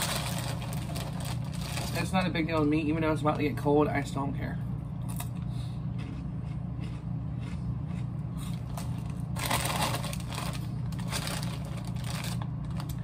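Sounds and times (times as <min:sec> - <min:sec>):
chip bag crinkling: 0:00.0 - 0:02.9, 0:08.4 - 0:13.0
steady low hum: 0:00.0 - 0:13.0
chewing crunchy snacks: 0:05.0 - 0:13.0.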